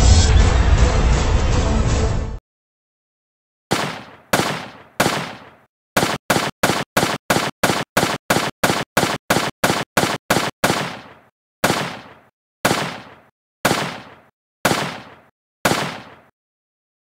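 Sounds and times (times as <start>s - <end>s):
sharp bangs: 3.7s - 16.3s.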